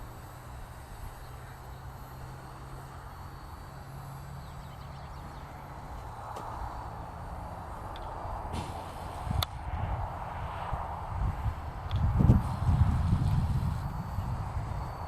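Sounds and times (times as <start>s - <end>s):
drone propellers whining: 0.0s - 15.0s
wind rumble on microphone: 6.4s - 15.0s
hiss: 8.4s - 9.5s, 12.2s - 13.9s.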